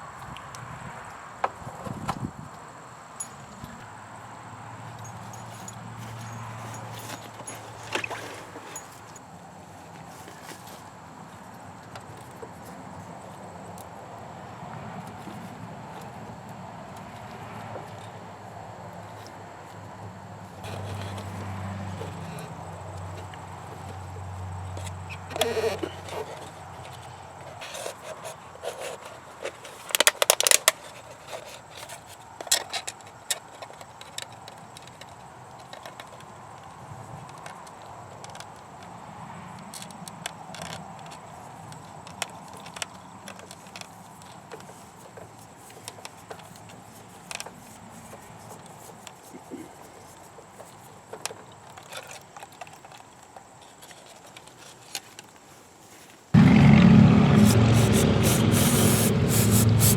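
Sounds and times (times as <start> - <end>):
tools and parts being handled: 4.9 - 9.3
machine humming and hissing: 56.4 - 59.9.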